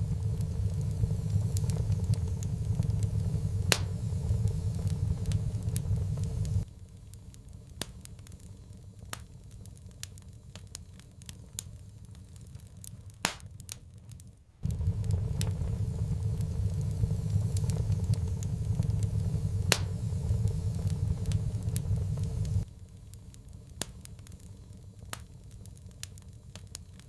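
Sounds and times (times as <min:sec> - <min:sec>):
low rumble: 0:00.0 - 0:06.7, 0:14.6 - 0:22.7
wood fire crackling: 0:00.0 - 0:27.0.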